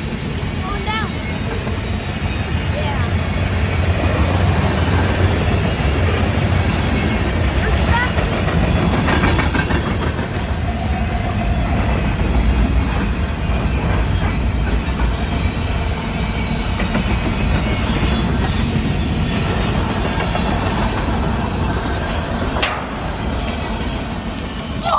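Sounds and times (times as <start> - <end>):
train wheels clicking over rail joints: 0.0 - 24.8.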